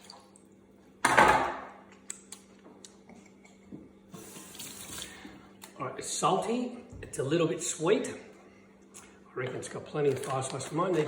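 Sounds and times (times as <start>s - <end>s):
loud kitchen clatter: 1.0s - 1.8s.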